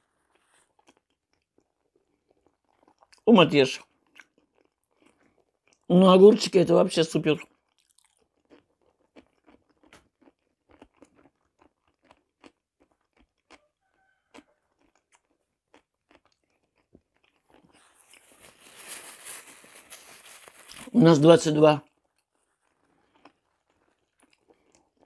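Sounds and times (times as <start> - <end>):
person chewing crunchy food: 0.0 - 3.2, 3.8 - 5.9, 7.4 - 21.0, 21.8 - 25.0
paper napkin rustling: 17.8 - 21.1.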